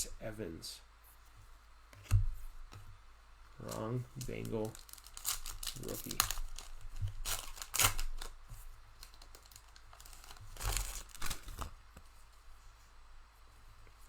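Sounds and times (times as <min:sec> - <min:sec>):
wrapper tearing and crinkling: 0:03.6 - 0:11.8.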